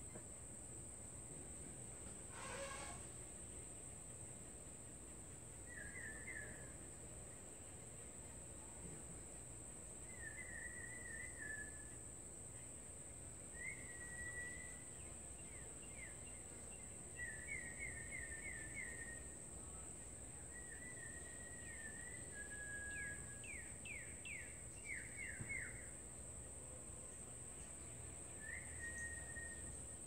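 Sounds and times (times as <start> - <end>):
steady high-pitched whine: 3.0 - 30.0
songbird chirping: 5.5 - 8.0, 10.0 - 26.3, 27.1 - 30.0.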